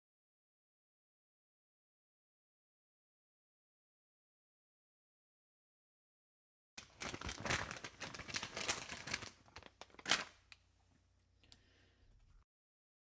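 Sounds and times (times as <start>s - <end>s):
plastic packaging crinkling: 6.8s - 10.6s.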